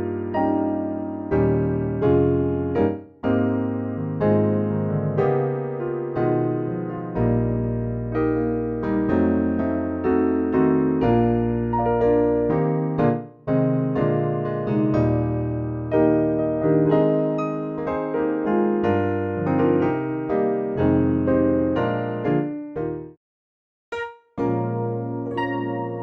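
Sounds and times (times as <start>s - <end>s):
keyboard playing sustained chords: 24.4s - 26.0s.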